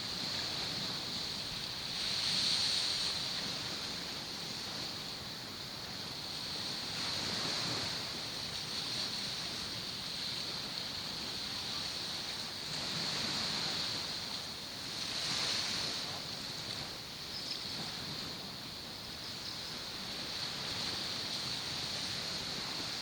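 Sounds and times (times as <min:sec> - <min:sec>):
steady high-pitched hiss: 0:00.0 - 0:23.0
surf washing onto shore: 0:00.0 - 0:23.0.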